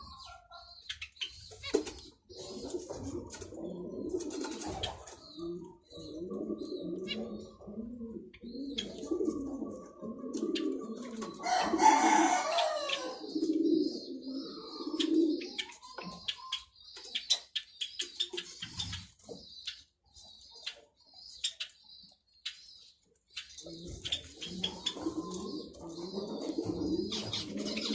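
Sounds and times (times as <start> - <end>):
doves cooing: 0.0 - 16.7, 23.4 - 27.9
high chirps and clicks: 8.4 - 9.4.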